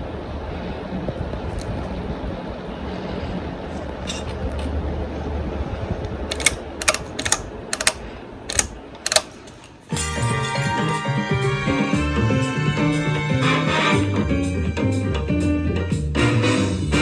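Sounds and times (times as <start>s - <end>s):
sharp irregular clicks: 6.3s - 9.4s.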